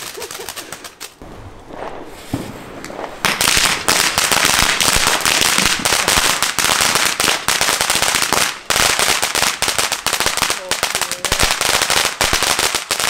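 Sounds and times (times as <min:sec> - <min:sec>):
firecrackers crackling pops: 0:00.0 - 0:13.0.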